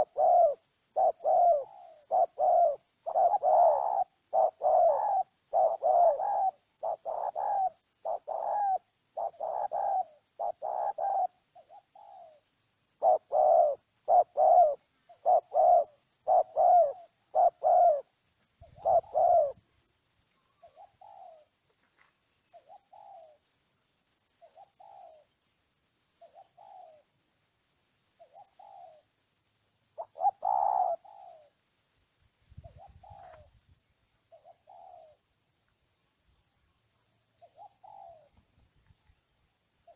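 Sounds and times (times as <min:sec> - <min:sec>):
small bird chirping: 0:00.0 - 0:19.6, 0:20.2 - 0:27.3, 0:28.0 - 0:29.2, 0:29.9 - 0:31.6, 0:32.3 - 0:39.9
dove cooing: 0:00.0 - 0:19.7, 0:20.5 - 0:21.6, 0:22.5 - 0:23.6, 0:24.4 - 0:25.4, 0:26.2 - 0:27.2, 0:28.2 - 0:29.1, 0:30.0 - 0:31.6, 0:32.6 - 0:33.6, 0:34.2 - 0:35.3, 0:37.4 - 0:38.5.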